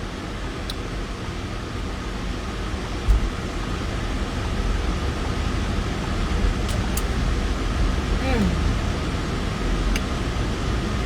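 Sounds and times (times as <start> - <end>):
car cabin rumble and hiss: 0.0 - 11.0.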